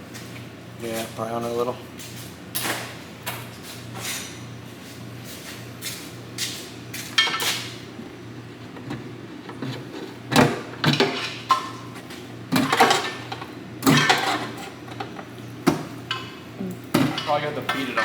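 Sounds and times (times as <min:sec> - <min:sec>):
steady low hum: 0:04.6 - 0:18.0
hand tools clanking on metal: 0:12.6 - 0:15.2, 0:16.9 - 0:18.0.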